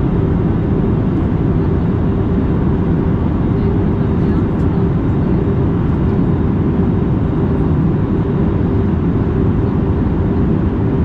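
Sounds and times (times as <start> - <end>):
airliner cabin noise: 0.0 - 11.0
faint constant hum: 0.0 - 11.0.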